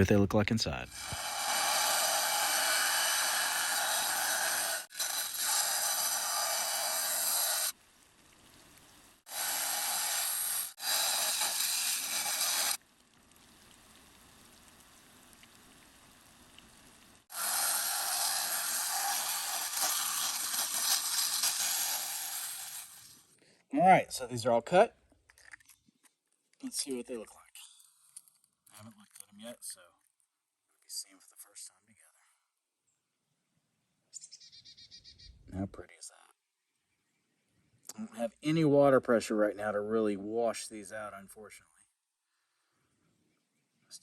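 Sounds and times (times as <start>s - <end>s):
rock saw cutting stone: 0.9s - 7.8s, 9.2s - 12.8s, 17.3s - 23.2s.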